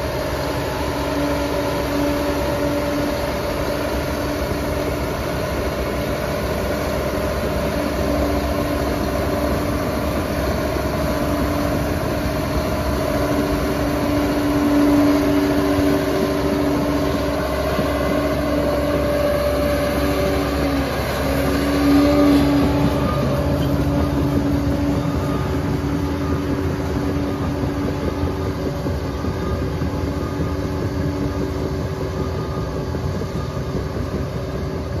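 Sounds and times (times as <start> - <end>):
crawler dozer diesel engine: 0.0 - 35.0.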